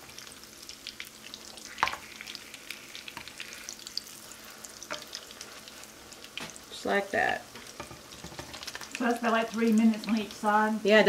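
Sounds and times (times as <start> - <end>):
potato cakes sizzling in oil: 0.0 - 11.0.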